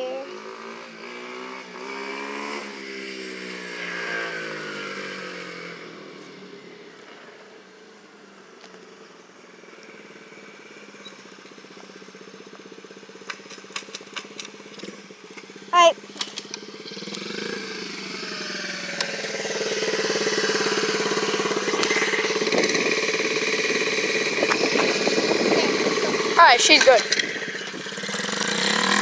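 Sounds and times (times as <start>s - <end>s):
dirt bike engine running: 8.0s - 29.0s.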